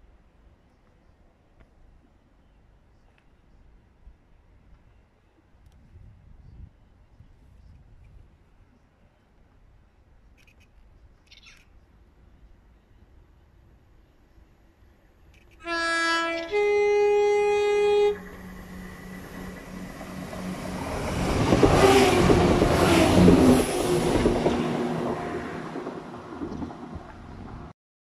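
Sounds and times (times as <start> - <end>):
train passing: 14.7 - 27.7
train two-note horn: 15.6 - 23.1.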